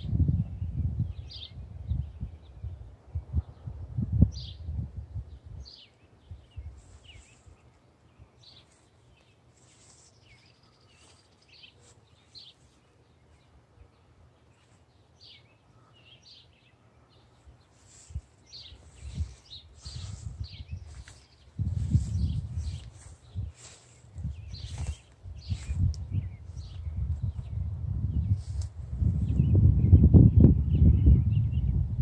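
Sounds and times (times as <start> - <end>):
faint outdoor background noise: 0.0 - 32.0
birds chirping: 0.4 - 31.8.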